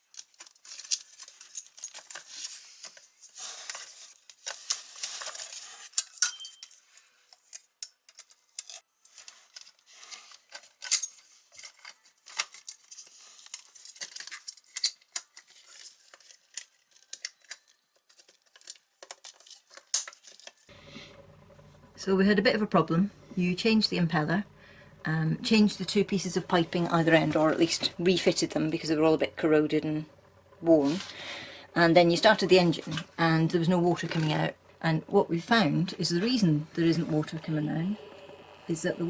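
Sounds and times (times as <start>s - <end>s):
hand tools clinking and scraping: 0.0s - 20.7s.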